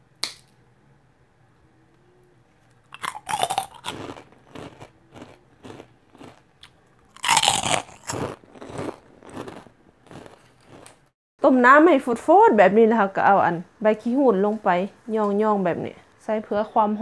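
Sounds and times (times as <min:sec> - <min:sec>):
chewing crunches: 0:02.9 - 0:11.1
crunchy bites: 0:02.9 - 0:11.1.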